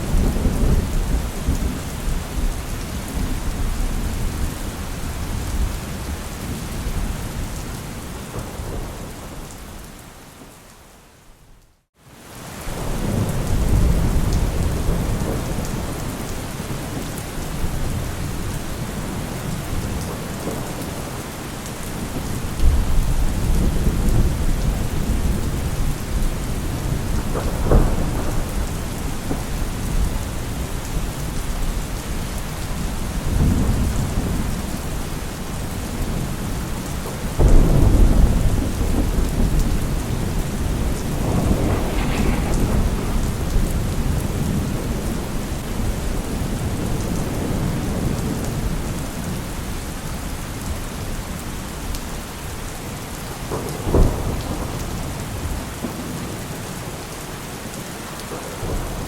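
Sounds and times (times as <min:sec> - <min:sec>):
rolling thunder: 0:00.0 - 0:07.5, 0:12.7 - 0:21.2, 0:22.0 - 0:32.2, 0:32.8 - 0:49.4, 0:53.4 - 0:56.4
heavy rain falling: 0:00.0 - 0:59.0
sharp thunderclap: 0:26.6 - 0:30.6, 0:37.4 - 0:48.8.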